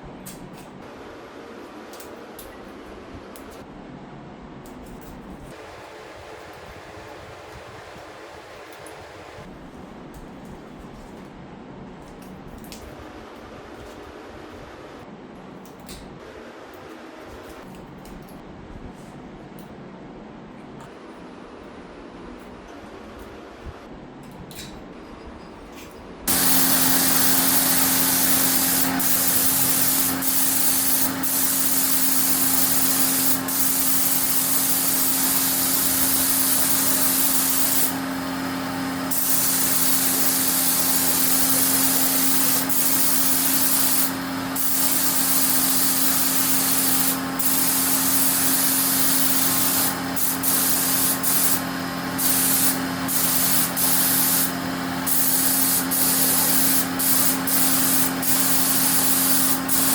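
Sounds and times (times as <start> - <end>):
spray gun hissing: 26.3 - 59.9.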